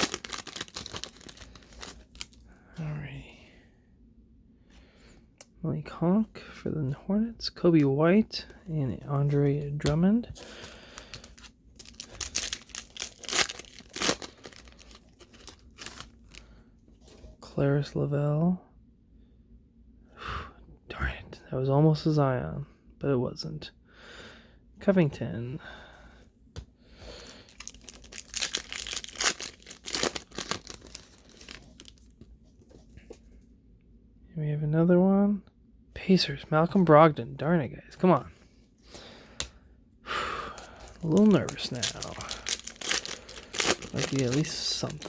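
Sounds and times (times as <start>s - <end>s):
foil wrapper tearing and crinkling: 0.0s - 2.4s, 10.4s - 16.4s, 27.2s - 32.1s, 40.6s - 45.0s.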